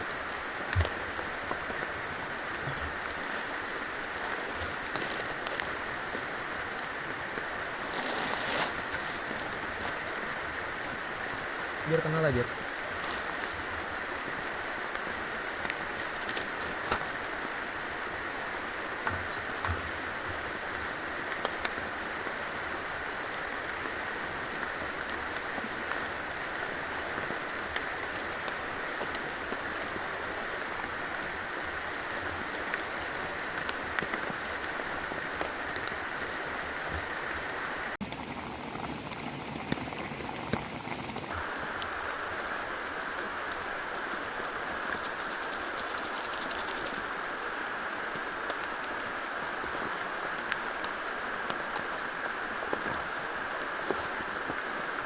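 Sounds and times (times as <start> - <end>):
flowing river water: 0.0 - 55.0
rain: 0.0 - 55.0
raindrops ticking: 8.8 - 37.4.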